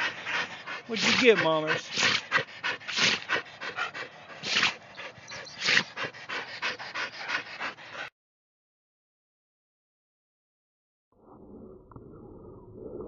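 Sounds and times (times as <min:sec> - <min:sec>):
dog panting: 0:00.0 - 0:08.1
dog sneezing: 0:01.9 - 0:02.2, 0:02.9 - 0:03.2, 0:04.4 - 0:04.8, 0:05.6 - 0:06.0.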